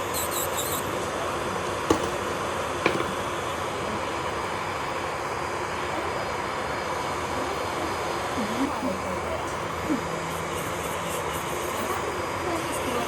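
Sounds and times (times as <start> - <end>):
small electric motor whirring: 0.0 - 1.1, 7.5 - 13.0.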